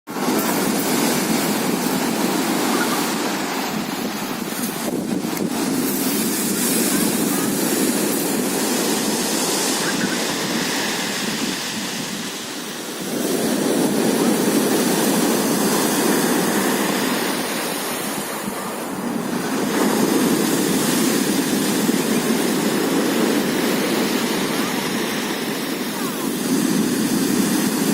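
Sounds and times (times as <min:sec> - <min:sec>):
surf washing onto shore: 0:00.1 - 0:27.9.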